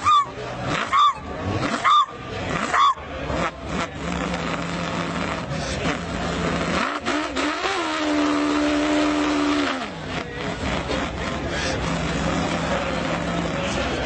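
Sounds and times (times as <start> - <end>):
person imitating car engine: 0.0 - 14.0.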